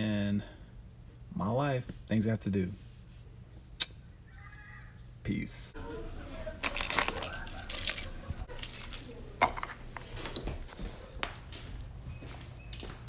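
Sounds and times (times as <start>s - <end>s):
small hard objects clinking: 6.6s - 9.7s.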